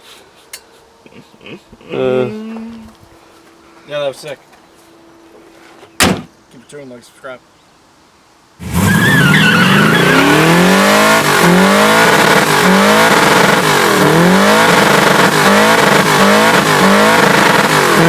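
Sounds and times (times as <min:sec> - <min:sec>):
tire squeal: 0:08.6 - 0:11.4
turbocharged car engine revving: 0:08.6 - 0:18.0.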